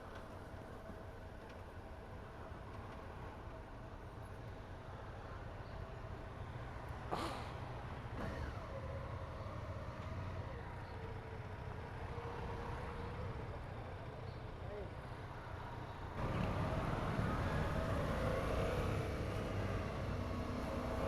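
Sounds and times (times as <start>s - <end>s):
low wind rumble: 10.4s - 21.0s.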